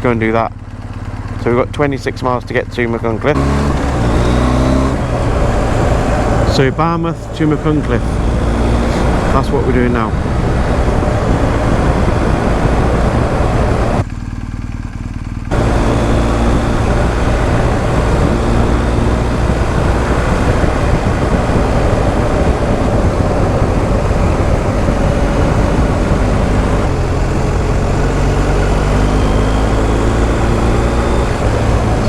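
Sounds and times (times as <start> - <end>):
motorcycle engine running: 0.0 - 32.0
wind and road noise: 0.0 - 32.0.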